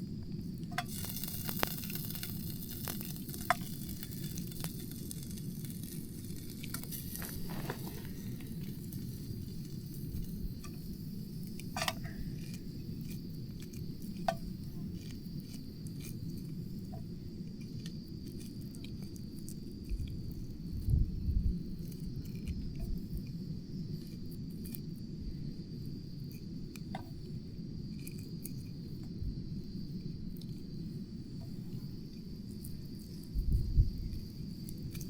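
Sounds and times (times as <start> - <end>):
campfire crackles: 0.0 - 35.0
food sizzling: 0.6 - 15.1.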